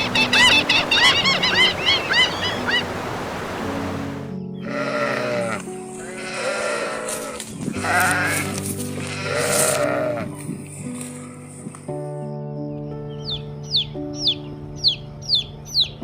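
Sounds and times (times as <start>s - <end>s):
background music: 0.0s - 16.0s
sheep bleating: 4.6s - 10.3s.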